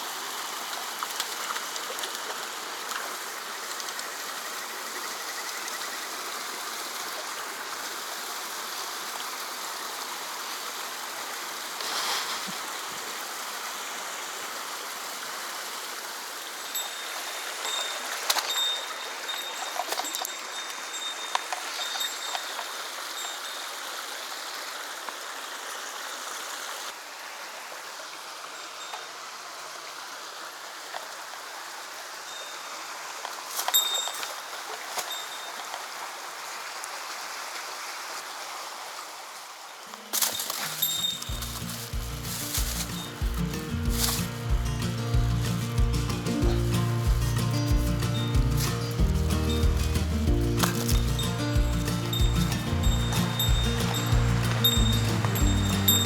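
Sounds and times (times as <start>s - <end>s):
stream flowing over rocks: 0.0s - 56.0s
thin high tone: 40.2s - 56.0s.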